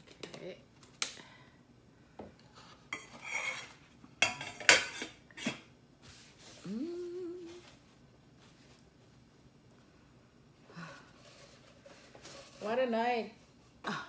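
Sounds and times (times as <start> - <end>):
person humming: 6.5 - 7.8.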